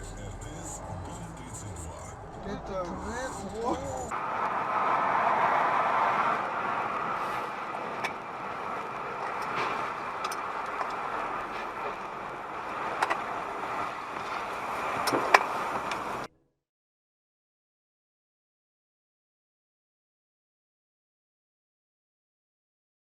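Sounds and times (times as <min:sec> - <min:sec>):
car road and engine noise: 0:00.0 - 0:16.3.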